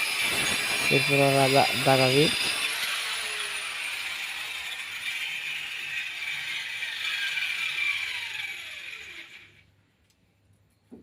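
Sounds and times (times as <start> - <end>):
electric grinder cutting brick: 0.0 - 9.6
grinder disc spinning down: 0.0 - 9.6.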